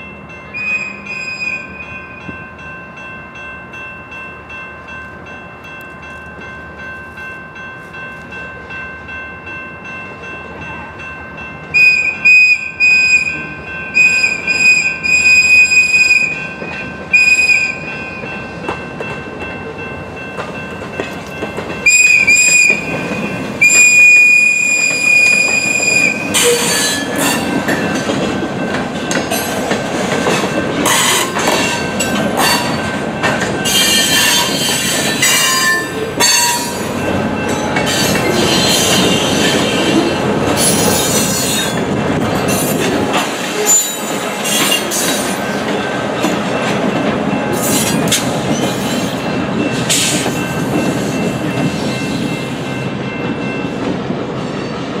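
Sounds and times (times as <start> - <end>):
crossing bell ringing: 0.0 - 55.0
diesel locomotives rumbling: 0.0 - 55.0
train wheels squealing and clicking: 0.6 - 2.4, 11.8 - 19.5, 20.4 - 52.6.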